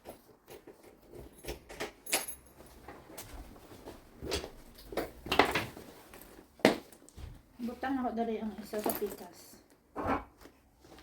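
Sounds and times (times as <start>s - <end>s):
items rustling and clicking: 0.0s - 11.0s.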